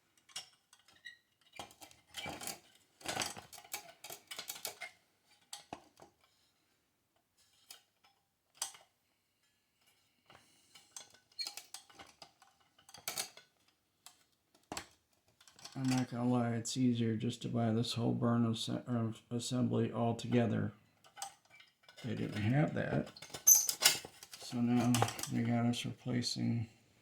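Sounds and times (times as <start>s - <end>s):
small metal parts clinking: 23.1s - 25.4s.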